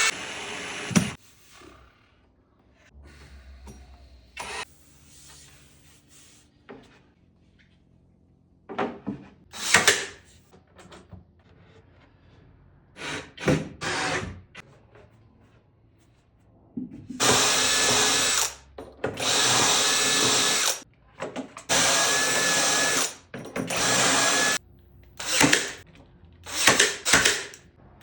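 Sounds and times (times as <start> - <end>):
woodworking power tools running: 0.0 - 1.2, 17.2 - 18.6, 19.2 - 20.8, 21.7 - 25.8, 26.5 - 27.6
workshop noise: 0.0 - 1.4, 8.7 - 28.0.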